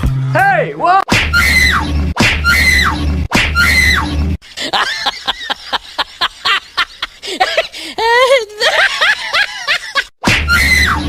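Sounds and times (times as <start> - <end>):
high-pitched falling cry: 1.3 - 1.8, 2.4 - 4.1, 10.5 - 11.0.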